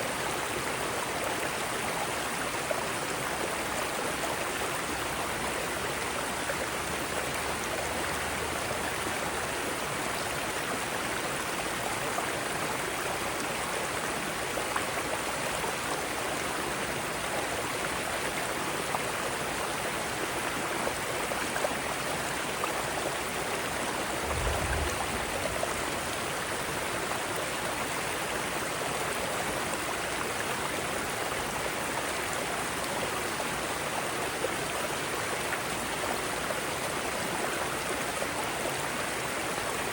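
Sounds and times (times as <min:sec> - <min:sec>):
stream running over rocks: 0:00.0 - 0:39.9
brief low thump: 0:24.2 - 0:26.5.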